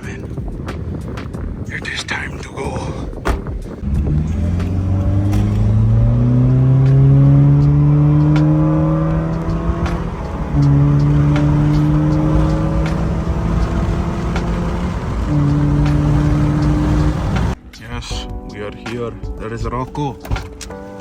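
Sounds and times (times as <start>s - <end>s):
car engine accelerating: 3.6s - 17.6s.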